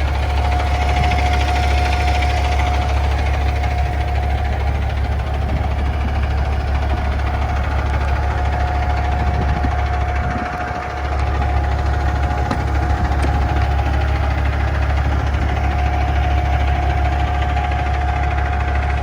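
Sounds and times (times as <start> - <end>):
thin steady whine: 0.0 - 19.0
truck engine idling: 0.0 - 19.0.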